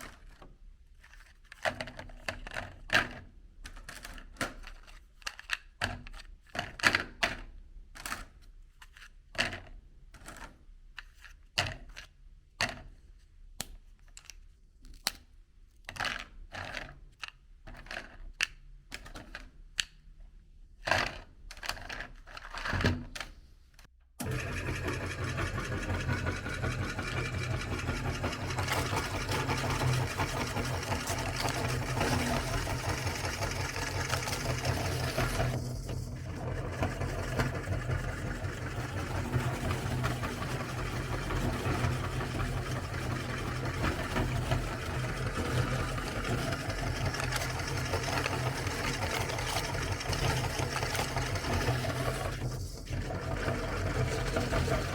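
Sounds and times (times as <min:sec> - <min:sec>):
electric meat grinder running: 0:24.2 - 0:54.9.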